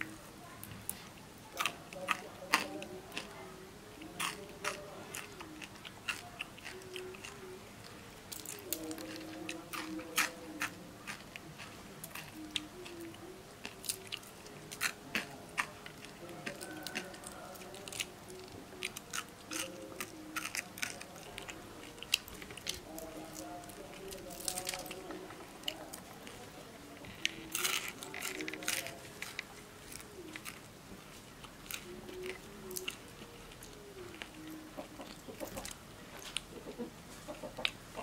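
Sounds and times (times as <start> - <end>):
chewing crispy food: 0.0 - 38.0
sharp crunches of bones: 4.2 - 7.4.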